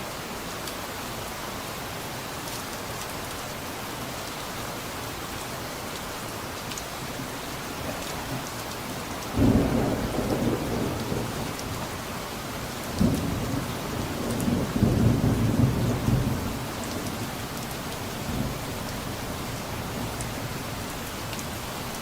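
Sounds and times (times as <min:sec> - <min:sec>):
steady rain: 0:00.0 - 0:22.0
distant thunder rumbling: 0:09.4 - 0:11.9, 0:12.9 - 0:17.2.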